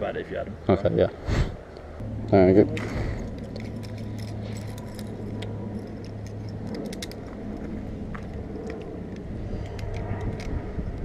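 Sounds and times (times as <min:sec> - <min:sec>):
low engine hum: 0:01.6 - 0:11.0
metallic jingling of keys: 0:03.2 - 0:07.4
scattered metal clicks: 0:03.2 - 0:11.0.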